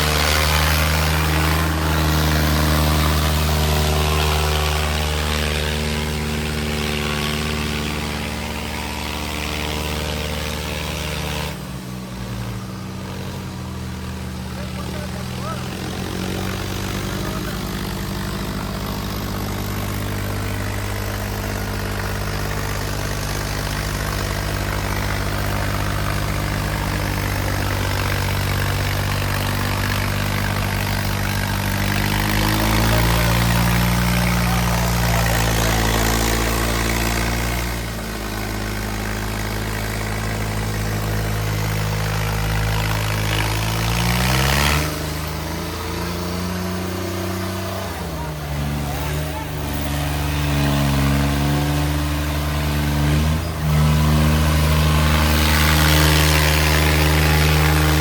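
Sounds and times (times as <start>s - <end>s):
tractor diesel engines under load: 0.0s - 58.0s.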